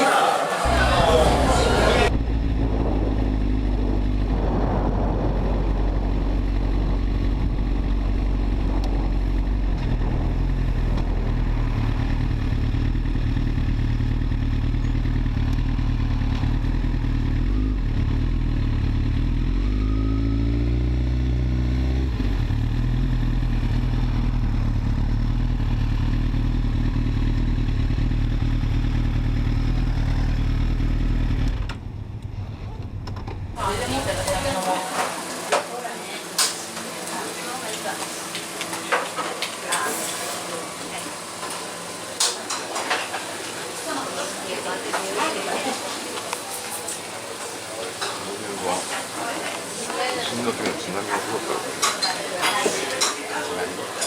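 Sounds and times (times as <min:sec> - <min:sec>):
motorcycle engine running: 0:00.6 - 0:34.6
road and wind noise: 0:00.7 - 0:34.6.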